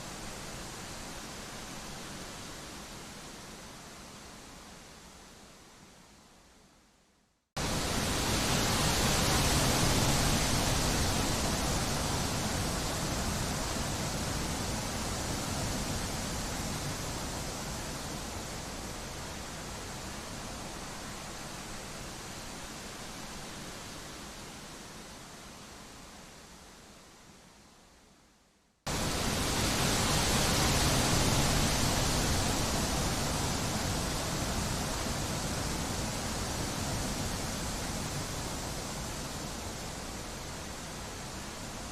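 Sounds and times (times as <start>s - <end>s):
rushing wind: 28.9s - 41.9s.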